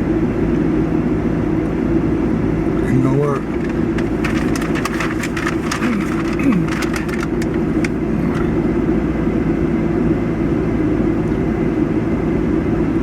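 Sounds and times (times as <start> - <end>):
vehicle engine rumbling: 2.9 - 8.8.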